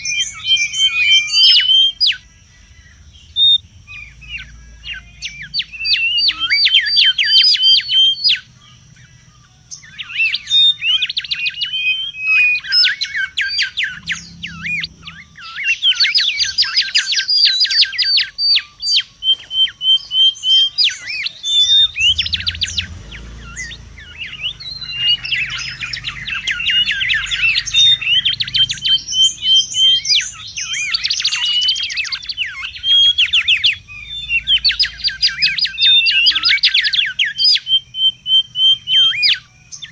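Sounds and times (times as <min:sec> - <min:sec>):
bird calling with trills: 0:00.0 - 0:39.9.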